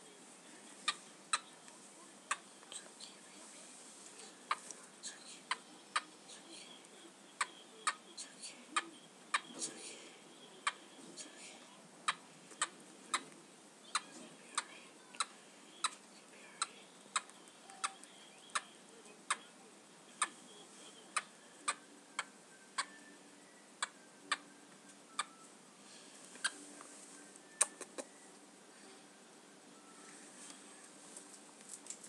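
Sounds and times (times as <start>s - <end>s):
rat clicking: 16.6s - 18.7s.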